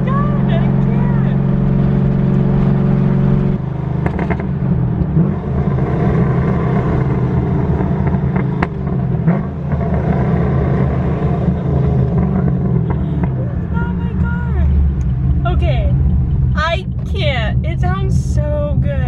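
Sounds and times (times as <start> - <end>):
loud car engine with choppy lope: 0.0 - 19.0.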